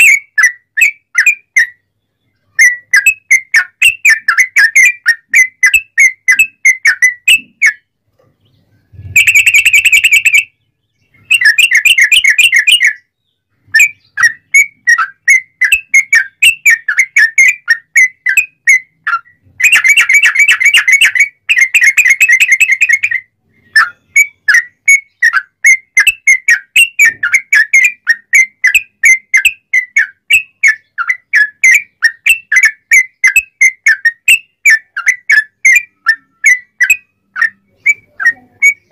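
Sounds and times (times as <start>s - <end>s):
bird whistling and trilling: 0.0s - 38.9s.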